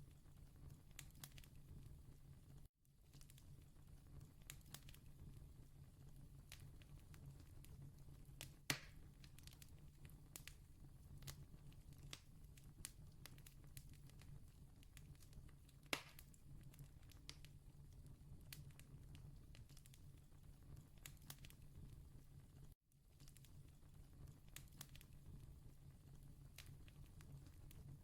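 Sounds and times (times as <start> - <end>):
campfire crackling: 3.2 - 5.1, 20.7 - 21.6, 23.2 - 25.2.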